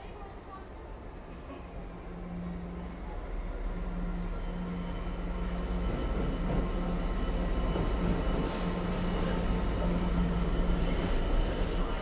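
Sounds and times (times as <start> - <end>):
train engine hum and rumble: 0.0 - 12.0.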